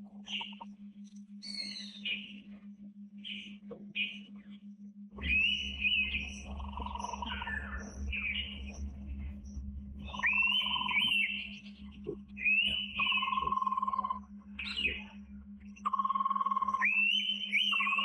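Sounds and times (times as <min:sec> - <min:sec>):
faint low hum: 0:00.0 - 0:18.0
bird whistled calls: 0:01.4 - 0:02.3, 0:05.2 - 0:08.5, 0:10.1 - 0:11.6, 0:12.4 - 0:15.2, 0:15.9 - 0:18.0.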